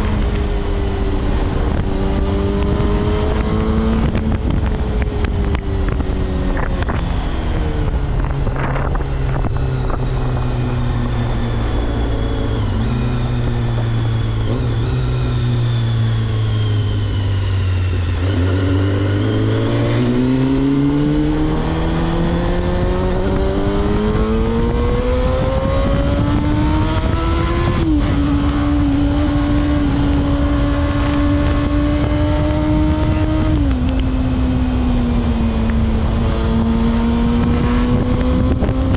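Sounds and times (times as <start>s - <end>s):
motorcycle engine: 0.0s - 38.9s.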